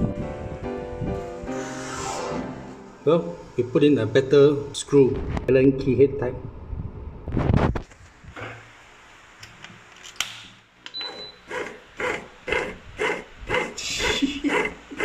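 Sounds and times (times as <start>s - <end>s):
bread maker beeping: 10.9s - 13.2s
kneading motor pulsing: 11.0s - 15.0s.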